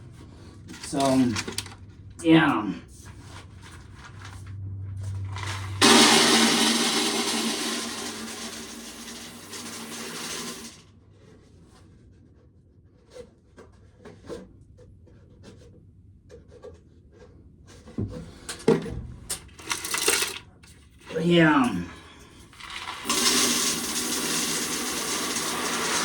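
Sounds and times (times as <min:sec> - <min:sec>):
corn sheller humming and rattling: 0:00.7 - 0:01.8, 0:05.2 - 0:10.8, 0:19.3 - 0:26.0.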